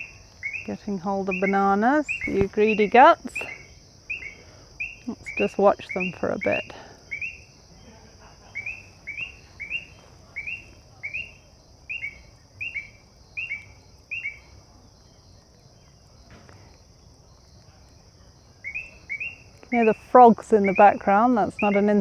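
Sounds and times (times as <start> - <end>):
frogs trilling: 0.0 - 22.0.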